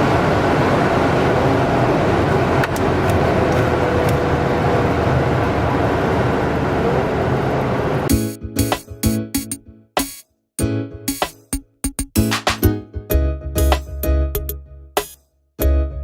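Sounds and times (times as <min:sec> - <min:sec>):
car engine at high speed: 0:00.0 - 0:08.1
road and wind noise: 0:00.0 - 0:08.1.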